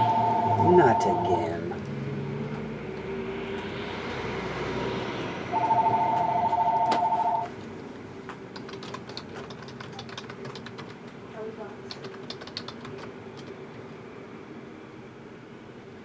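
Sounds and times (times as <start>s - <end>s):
two-tone electronic ringing: 0.0s - 1.7s, 5.5s - 7.5s.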